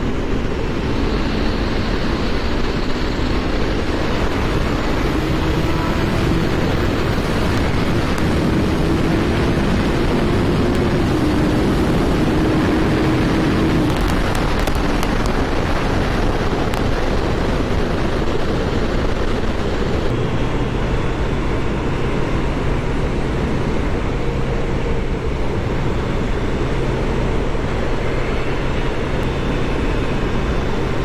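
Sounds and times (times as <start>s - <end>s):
motorcycle engine drone: 0.0s - 31.0s
wind rushing over microphone: 0.0s - 31.0s.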